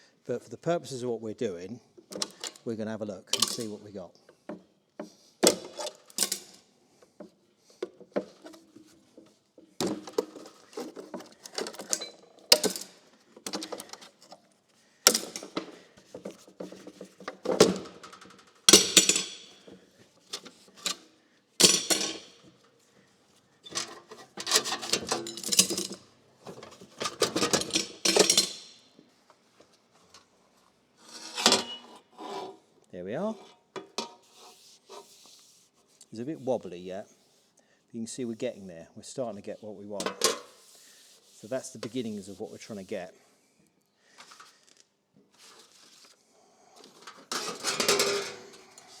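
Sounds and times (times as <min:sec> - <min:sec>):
sheet metal and tools clattering: 0:02.1 - 0:02.6, 0:03.3 - 0:03.8, 0:05.4 - 0:14.4, 0:15.1 - 0:22.8, 0:23.6 - 0:29.0, 0:31.0 - 0:32.6, 0:33.3 - 0:34.5, 0:40.0 - 0:40.6, 0:46.8 - 0:49.0.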